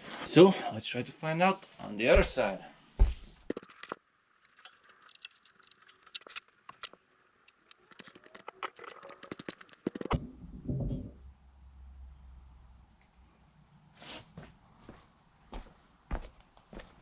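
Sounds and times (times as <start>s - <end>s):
tools clicking and tapping: 3.5s - 10.1s.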